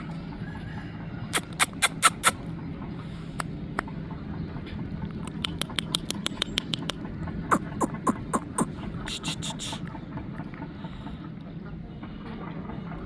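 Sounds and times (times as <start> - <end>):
steady low hum: 0.0 - 13.0
sharp clicking taps: 5.2 - 7.1.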